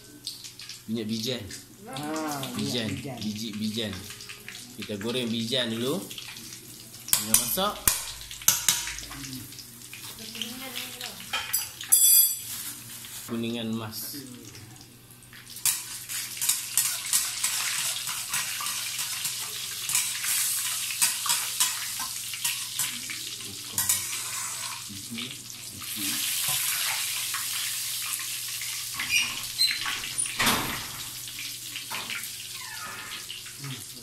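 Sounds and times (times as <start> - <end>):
seeds sizzling in hot oil: 0.0 - 13.4, 15.4 - 34.0
spatula clinking and scraping: 11.3 - 12.8, 15.6 - 23.0.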